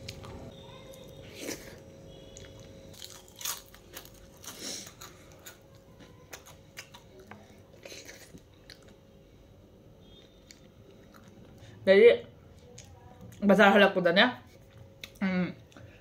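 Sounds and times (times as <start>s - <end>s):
person chewing crunchy food: 0.0s - 9.0s, 10.1s - 11.7s.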